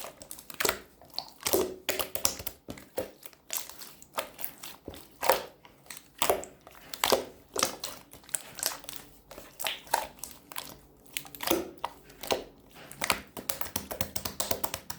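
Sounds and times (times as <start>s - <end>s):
slime clicking and popping: 0.6s - 3.6s, 13.0s - 14.9s.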